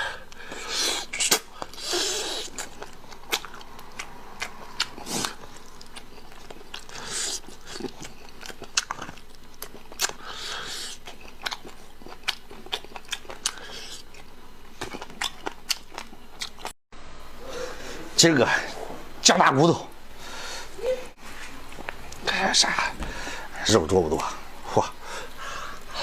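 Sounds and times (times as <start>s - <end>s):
wet mouth clicks: 0.3s - 16.7s
chewing and biting: 0.3s - 16.8s.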